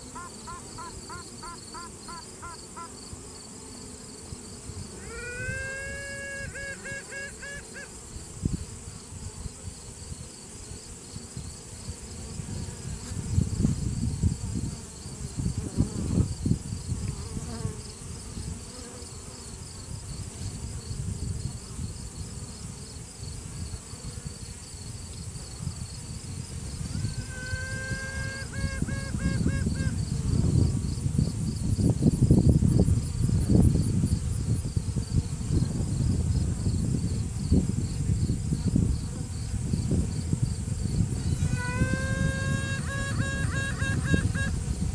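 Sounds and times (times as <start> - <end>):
bees buzzing: 0.0 - 31.0, 40.6 - 44.9
queen bee piping: 0.0 - 44.9.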